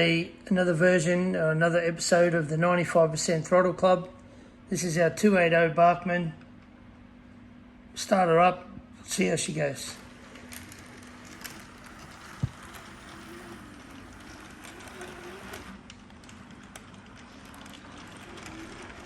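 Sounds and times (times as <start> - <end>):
model train motor whirring: 9.9 - 19.0.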